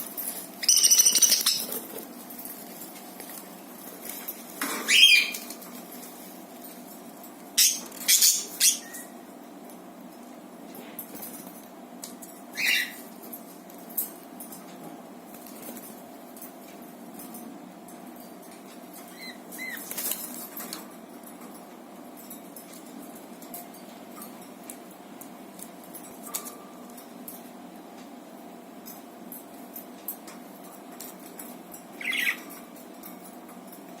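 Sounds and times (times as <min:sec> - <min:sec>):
budgie chirps and clicks: 0:00.6 - 0:01.7.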